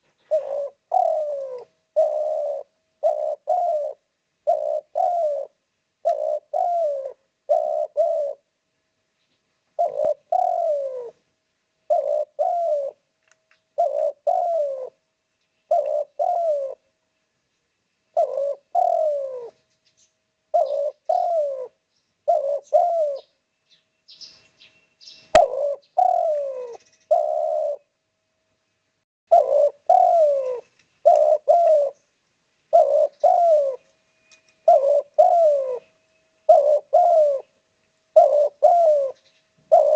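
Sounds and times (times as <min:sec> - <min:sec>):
dove cooing: 0:00.0 - 0:08.5, 0:09.8 - 0:11.2, 0:11.8 - 0:13.1, 0:13.7 - 0:15.0, 0:15.7 - 0:16.9, 0:18.1 - 0:19.7, 0:20.5 - 0:23.4, 0:25.3 - 0:28.0, 0:29.3 - 0:32.1, 0:32.7 - 0:39.9.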